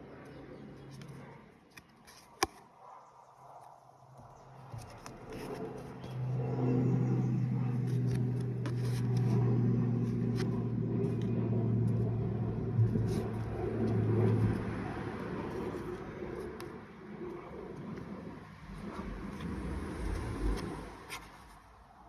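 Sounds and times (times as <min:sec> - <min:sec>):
low motor hum: 0:04.4 - 0:21.1.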